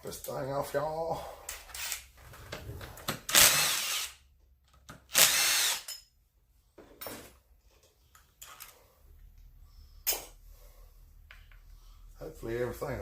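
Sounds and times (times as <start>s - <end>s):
impact wrench whining: 2.8s - 4.2s, 5.0s - 6.0s.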